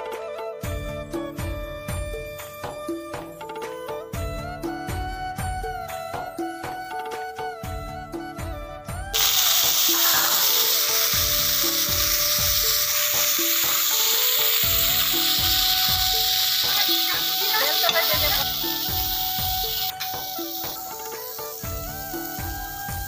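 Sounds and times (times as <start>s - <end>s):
vegetables sizzling in hot oil: 9.2s - 23.0s.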